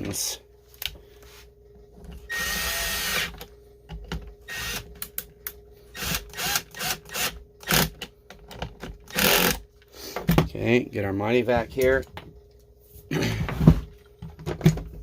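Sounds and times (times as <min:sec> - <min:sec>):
power driver running: 0:02.3 - 0:03.5.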